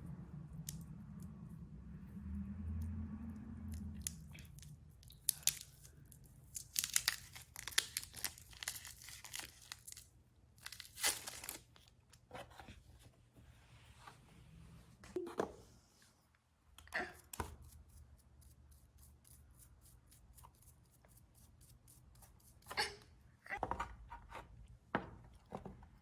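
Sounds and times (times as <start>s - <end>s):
low hum: 0.0s - 4.9s
packaging crinkling: 4.6s - 11.9s
packaging tearing: 6.5s - 11.9s.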